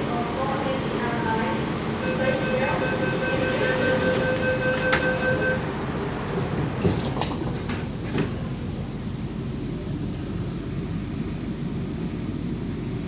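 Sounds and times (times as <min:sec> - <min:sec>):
train rumble: 0:00.0 - 0:13.0
door warning beeps: 0:02.0 - 0:05.8
sliding doors knocking shut: 0:02.2 - 0:08.4.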